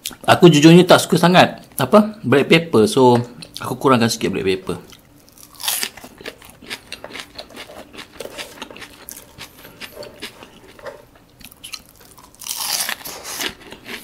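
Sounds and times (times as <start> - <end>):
mouth chewing fries: 4.8 - 14.0.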